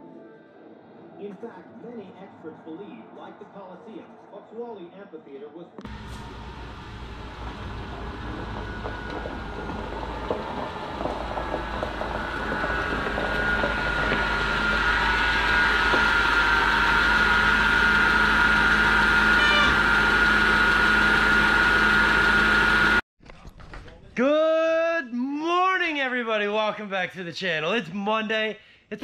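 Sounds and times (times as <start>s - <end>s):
high whine: 5.8s - 23.0s
faint crackles: 5.9s - 17.5s
car engine running: 5.9s - 23.0s.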